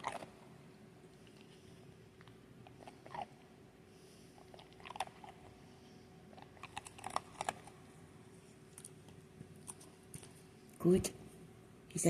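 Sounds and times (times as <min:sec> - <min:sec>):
dog crunching food: 0:00.0 - 0:00.5, 0:02.2 - 0:03.4, 0:04.4 - 0:05.7, 0:06.3 - 0:10.4.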